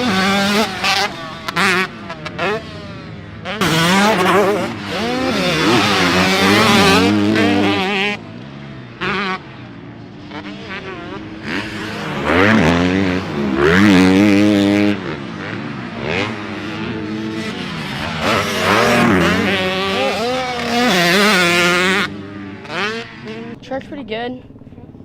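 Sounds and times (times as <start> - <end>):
racing engines revving: 0.0 - 24.0.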